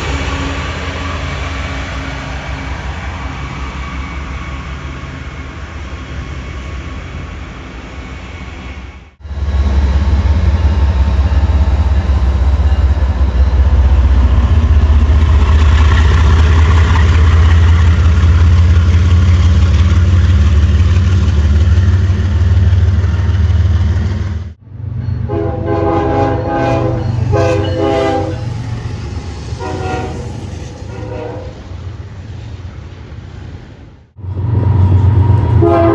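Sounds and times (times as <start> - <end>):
train passing rumble: 0.0 - 35.9
train horn blasts: 25.3 - 28.6, 29.6 - 31.7, 34.9 - 35.9.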